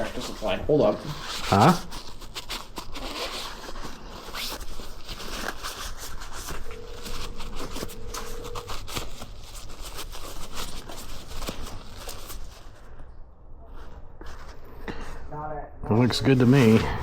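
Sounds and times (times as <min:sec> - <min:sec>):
scratching and rubbing strokes: 0:00.0 - 0:12.9
faint steady tone: 0:06.5 - 0:09.2.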